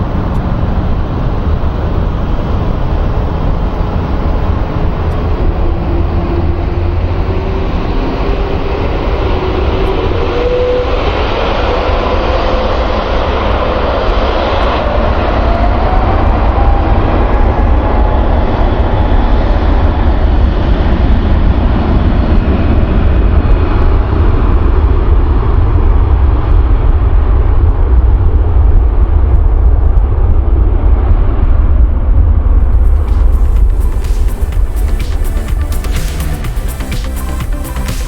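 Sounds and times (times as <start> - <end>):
jet engine whine: 0.0 - 38.0
low rumble: 0.0 - 38.0.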